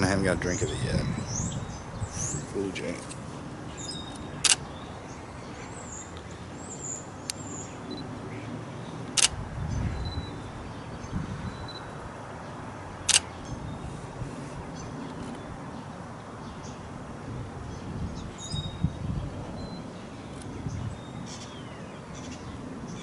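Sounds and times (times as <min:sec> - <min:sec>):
camera shutter clicking: 0:04.2 - 0:04.6, 0:09.1 - 0:09.4, 0:13.1 - 0:13.3.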